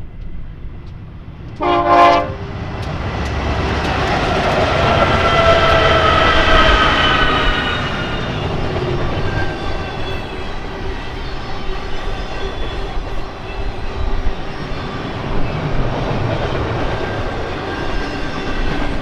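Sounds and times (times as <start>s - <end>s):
freight train rumbling past: 0.0s - 19.0s
train horn blast: 1.6s - 2.7s.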